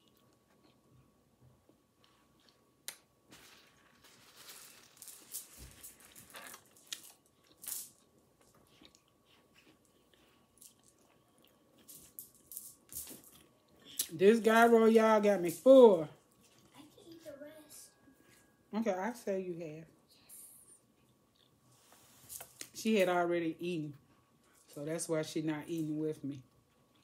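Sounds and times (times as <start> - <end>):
chewing mouth sounds: 8.4 - 11.9.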